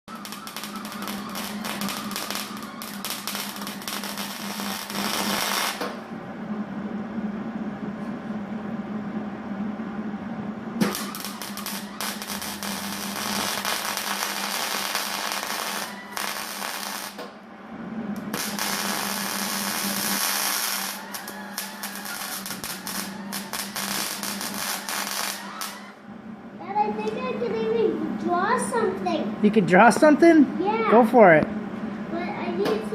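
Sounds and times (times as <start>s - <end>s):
welding arc crackling: 0.0s - 6.1s, 10.8s - 17.3s, 18.2s - 26.0s
steady low hum: 0.0s - 32.9s.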